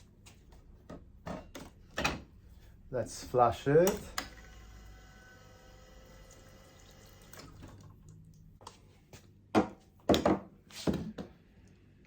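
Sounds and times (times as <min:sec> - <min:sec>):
espresso machine pump humming: 0:04.3 - 0:07.4.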